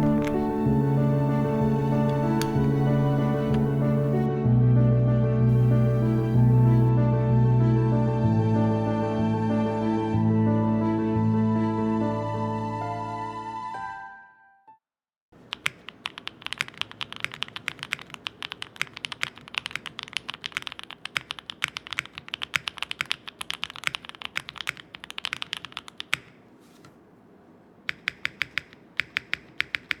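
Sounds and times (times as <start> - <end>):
mechanical keyboard typing: 0.0 - 4.3, 5.5 - 6.9, 15.4 - 26.5, 27.9 - 30.0.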